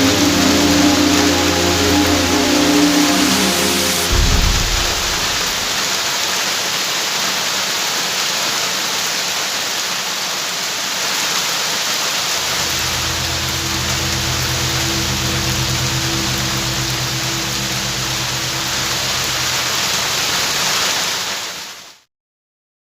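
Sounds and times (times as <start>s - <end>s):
low held background music tones: 0.0s - 5.8s, 12.4s - 20.5s
low rumble: 0.0s - 6.0s, 12.3s - 20.8s
steady rain: 0.0s - 22.0s.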